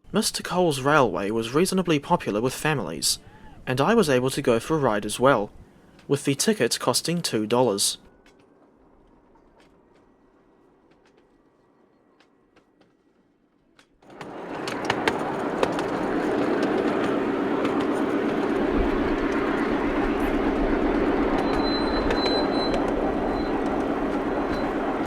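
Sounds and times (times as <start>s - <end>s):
train wheel clicks: 13.8s - 25.0s
miniature train running on track: 14.1s - 25.0s.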